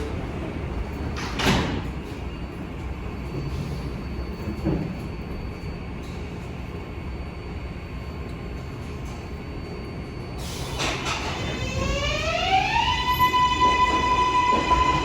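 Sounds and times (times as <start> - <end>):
subway doors sliding closed: 0.0 - 5.0, 10.4 - 15.0
train low rumble: 0.0 - 15.0.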